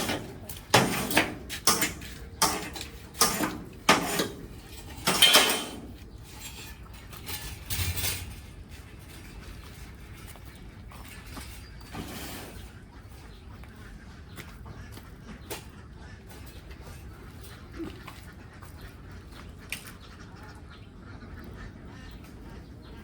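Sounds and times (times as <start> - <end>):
hard objects clattering: 0.0 - 8.9.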